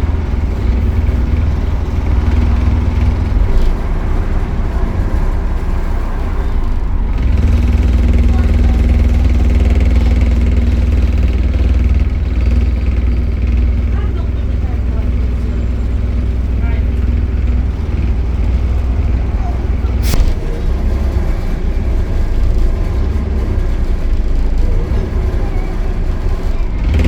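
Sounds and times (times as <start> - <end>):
bus engine drone: 0.0 - 27.0.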